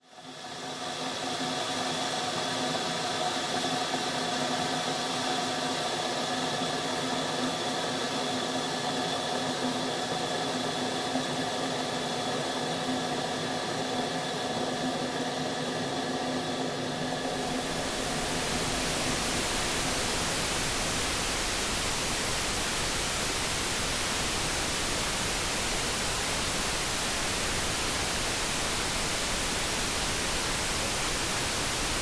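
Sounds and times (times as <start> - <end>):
electric kettle humming: 17.0 - 32.0.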